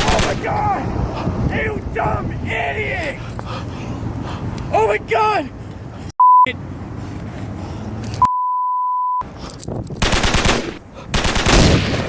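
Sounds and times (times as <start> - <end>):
automatic gunfire: 0.0 - 0.4, 10.0 - 12.0
electronic beep tone: 6.2 - 6.5, 8.2 - 9.2.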